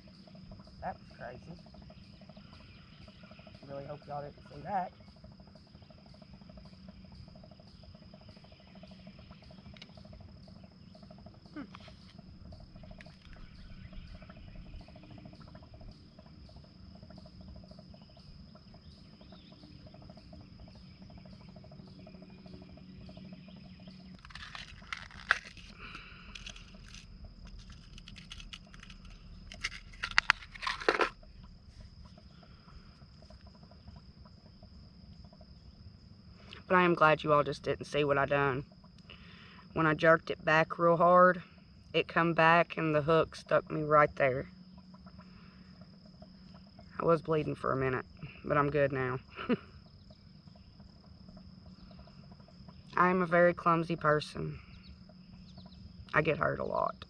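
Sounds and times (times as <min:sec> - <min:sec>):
insects trilling: 0:00.0 - 0:57.0
rustling: 0:24.2 - 0:32.0.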